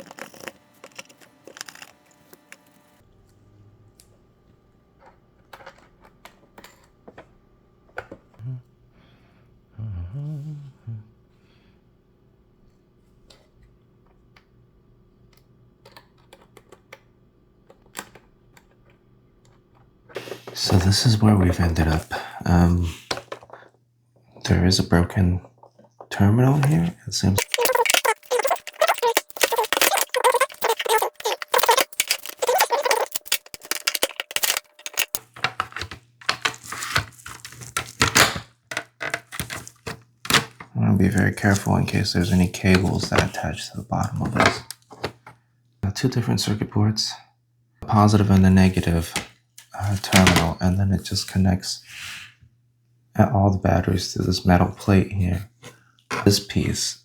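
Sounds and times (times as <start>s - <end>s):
plastic toy clicking and clattering: 0.0s - 2.6s, 5.0s - 7.2s, 27.4s - 40.7s.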